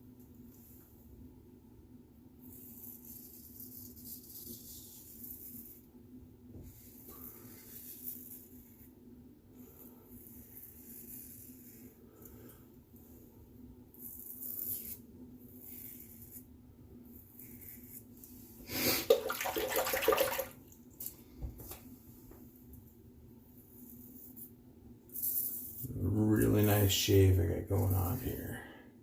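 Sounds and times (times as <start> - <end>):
razor scraping beard stubble: 10.2 - 12.3, 14.0 - 16.5, 17.2 - 19.0
running tap water: 18.9 - 20.6.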